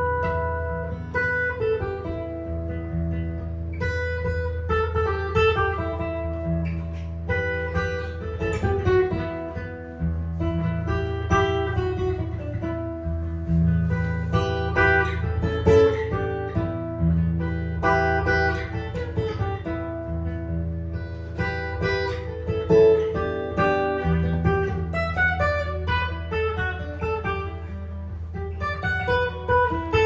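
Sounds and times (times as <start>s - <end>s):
low bass notes: 0.0s - 3.8s, 9.4s - 21.5s
jazz guitar playing: 0.0s - 30.0s.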